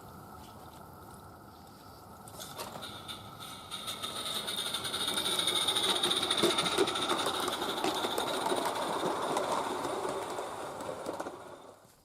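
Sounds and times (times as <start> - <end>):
steady high steam hiss: 0.0 - 12.0
steam locomotive exhaust chatter: 2.0 - 11.9.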